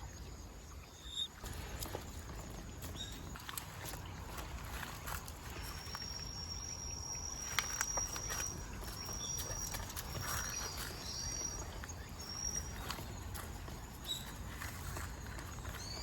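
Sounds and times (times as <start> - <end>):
low rumble of wind: 0.0 - 16.0
insect trilling: 4.7 - 15.1.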